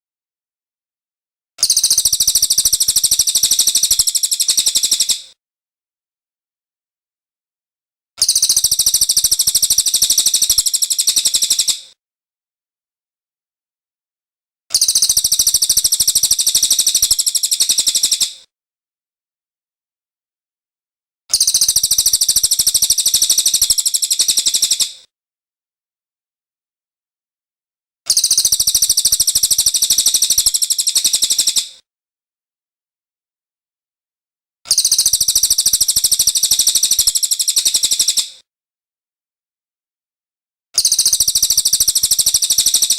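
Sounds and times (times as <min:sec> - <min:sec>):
fast high-pitched bird trill: 0:01.6 - 0:05.2, 0:08.2 - 0:11.8, 0:14.7 - 0:18.3, 0:21.3 - 0:24.8, 0:28.1 - 0:31.6, 0:34.7 - 0:38.2, 0:40.8 - 0:42.9.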